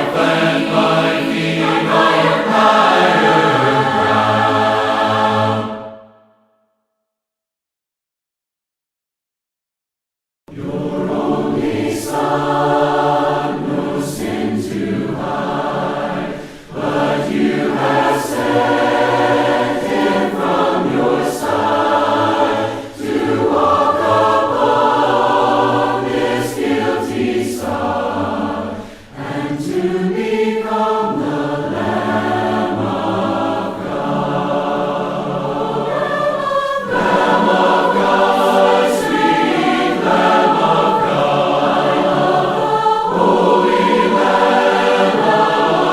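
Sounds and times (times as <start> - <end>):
choir singing a hymn: 0.0 - 6.2, 10.5 - 45.9.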